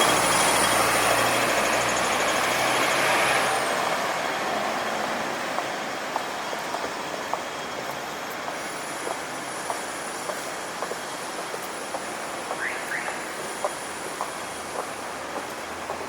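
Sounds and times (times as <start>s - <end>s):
city street noise: 0.0s - 16.0s
footsteps on pavement: 4.8s - 16.0s.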